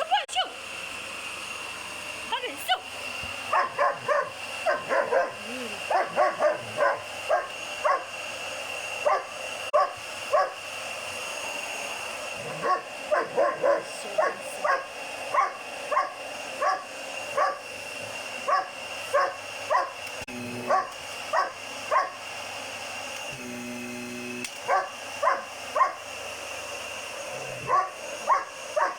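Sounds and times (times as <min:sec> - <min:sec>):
vacuum cleaner whining: 0:00.0 - 0:28.9
puppy barking: 0:03.5 - 0:08.1, 0:09.0 - 0:10.6, 0:12.4 - 0:17.6, 0:18.5 - 0:20.0, 0:20.7 - 0:22.2, 0:24.7 - 0:26.0, 0:27.6 - 0:28.9.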